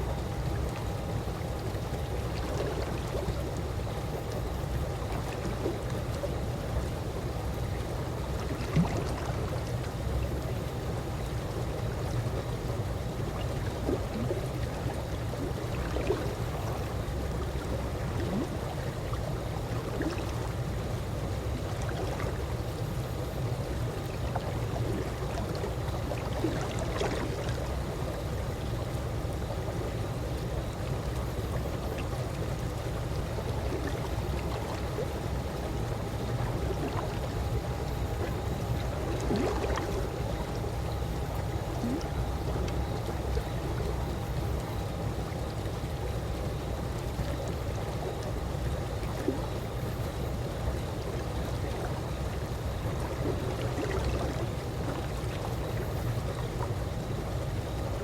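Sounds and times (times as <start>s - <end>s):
pool water moving: 0.0s - 58.0s.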